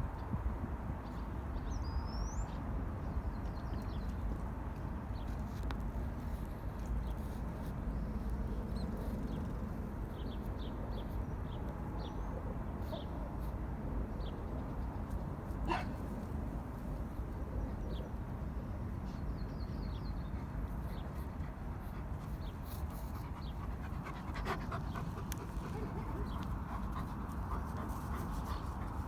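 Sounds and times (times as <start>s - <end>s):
birds chirping: 22.3s - 29.0s.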